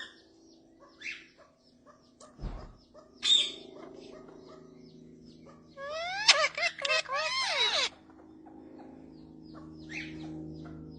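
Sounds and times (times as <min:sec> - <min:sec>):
parrot chirping: 0:05.5 - 0:08.0
parrot squawk: 0:05.7 - 0:08.0.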